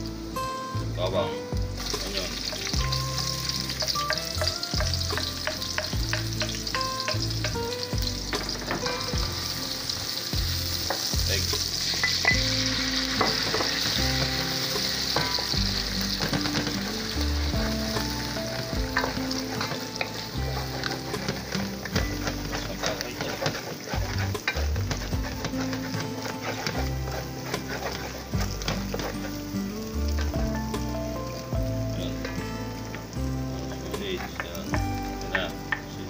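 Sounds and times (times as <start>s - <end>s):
food sizzling in hot oil: 0.0s - 36.0s
wooden spoon stirring and clicking: 1.8s - 30.5s.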